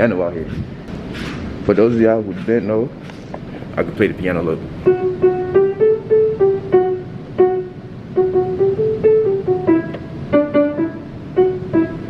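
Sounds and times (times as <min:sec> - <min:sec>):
piano melody: 0:04.4 - 0:12.0.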